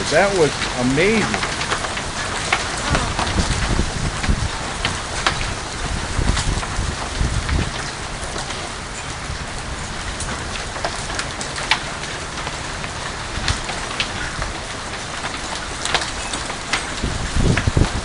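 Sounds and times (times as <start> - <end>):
hailstones striking hard surfaces: 0.0 - 8.7
heavy rain downpour: 0.0 - 18.0.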